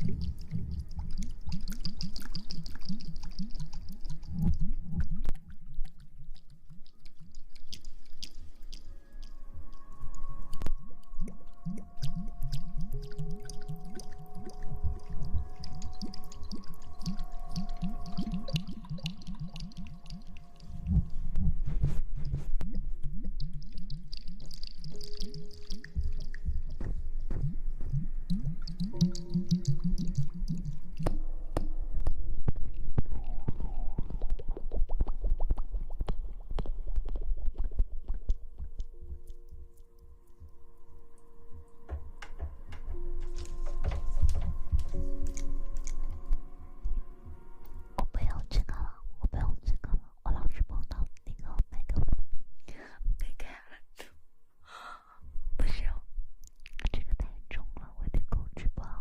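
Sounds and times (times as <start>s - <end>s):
faint steady tones: 7.9s - 32.5s
wet squishing of hair washing: 11.7s - 20.9s
low rumble: 14.3s - 25.0s.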